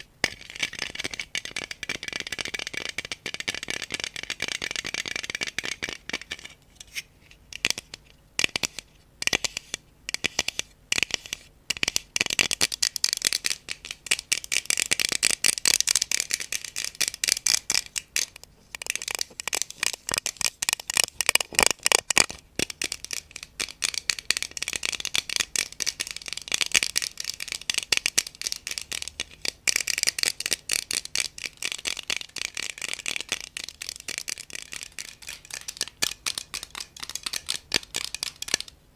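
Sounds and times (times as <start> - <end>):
crisp tapping and scratching: 12.4 - 38.8.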